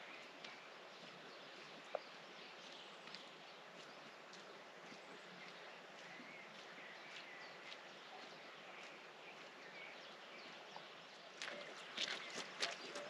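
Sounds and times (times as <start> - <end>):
footsteps on trail: 0.0 - 13.0
steady outdoor hiss: 0.0 - 13.0.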